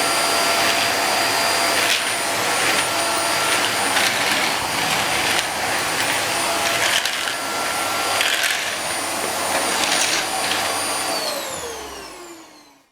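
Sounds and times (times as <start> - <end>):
vacuum cleaner motor whine: 0.0 - 12.9.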